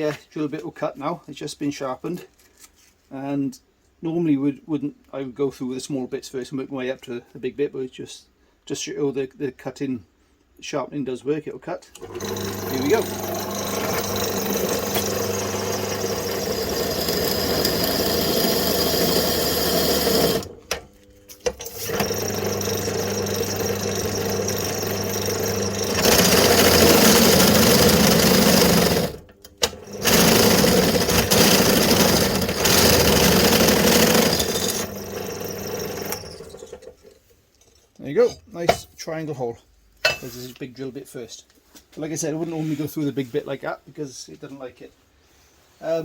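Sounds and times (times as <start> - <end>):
drill bit chattering: 12.0 - 20.8, 21.4 - 36.8
electric drill cutting a hole: 12.0 - 20.8, 21.5 - 36.8.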